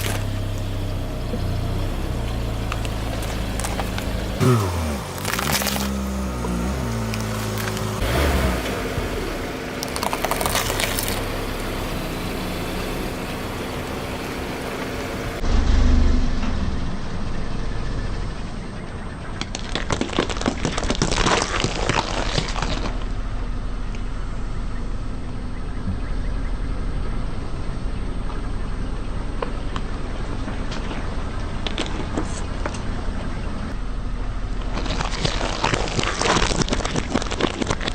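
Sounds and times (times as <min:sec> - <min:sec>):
car engine running slowly: 0:00.0 - 0:37.9
tyre crushing crunchy objects: 0:01.9 - 0:11.8, 0:19.4 - 0:23.1, 0:34.6 - 0:37.9.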